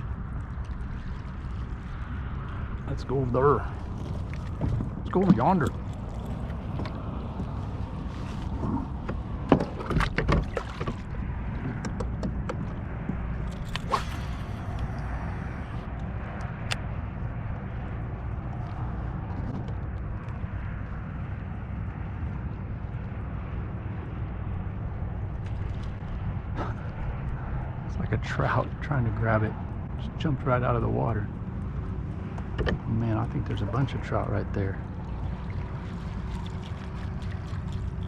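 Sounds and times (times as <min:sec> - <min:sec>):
water rushing along hull: 0:00.0 - 0:38.0
knocks and clicks: 0:11.6 - 0:12.8.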